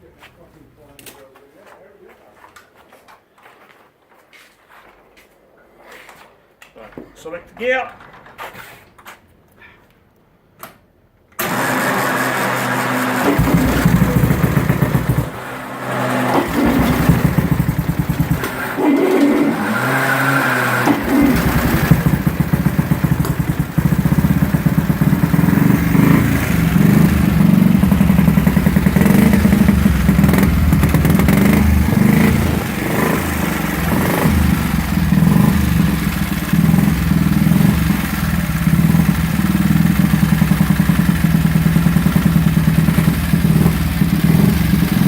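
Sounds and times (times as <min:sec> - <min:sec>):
motorcycle engine revving: 0:11.4 - 0:45.0.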